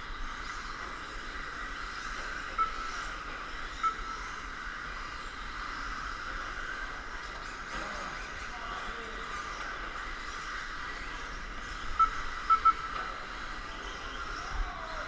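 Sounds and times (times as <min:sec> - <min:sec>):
short beeps: 0:02.6 - 0:03.0, 0:12.0 - 0:13.0.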